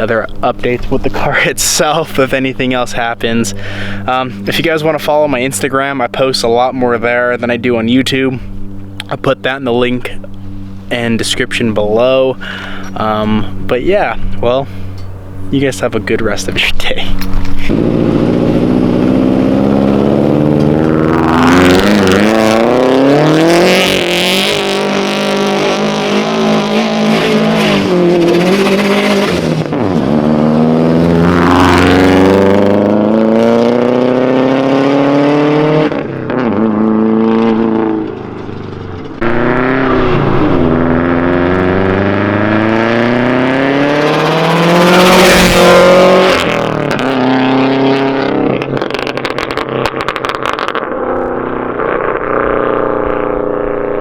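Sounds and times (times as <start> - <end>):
car engine accelerating through gears: 17.0 - 54.0.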